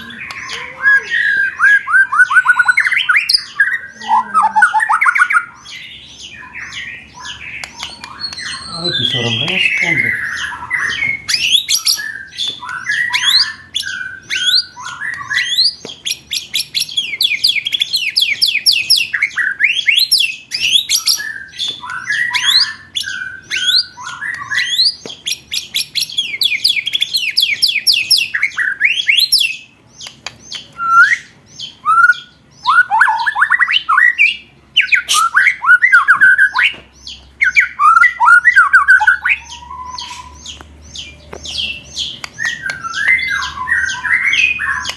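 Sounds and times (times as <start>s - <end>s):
songbird song: 0.0s - 44.9s
rattling chattering bird calls: 5.6s - 19.4s.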